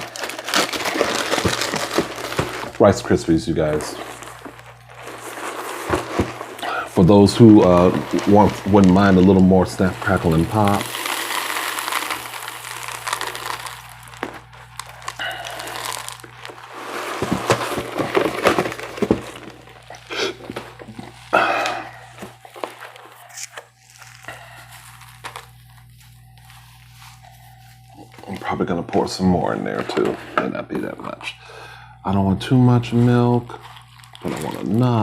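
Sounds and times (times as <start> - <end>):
cereal crackling in milk: 0.0 - 30.1, 32.7 - 35.0.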